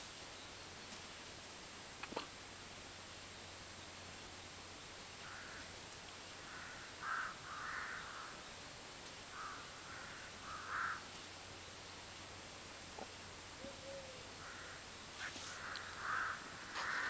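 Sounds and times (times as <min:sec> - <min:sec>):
bird cawing: 0:05.2 - 0:05.7, 0:06.4 - 0:08.5, 0:09.3 - 0:11.1, 0:13.6 - 0:17.0.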